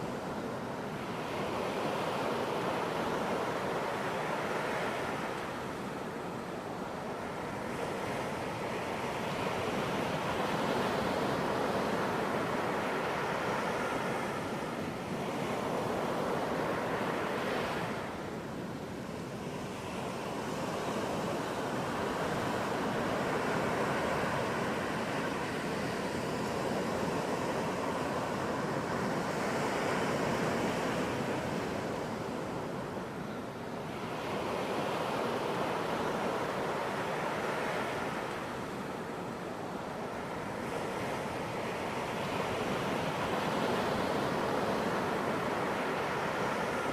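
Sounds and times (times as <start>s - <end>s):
waves breaking on a beach: 0.0s - 46.9s.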